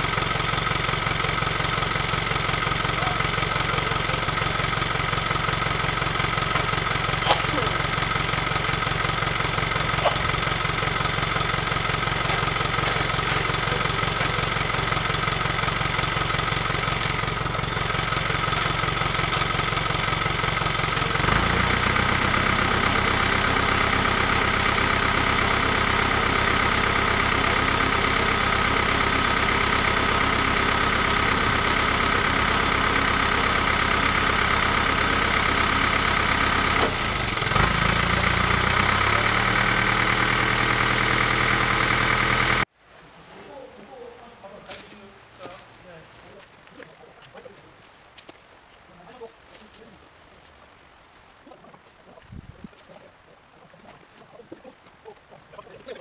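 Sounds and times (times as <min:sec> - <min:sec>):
engine idling: 0:00.0 - 0:42.7.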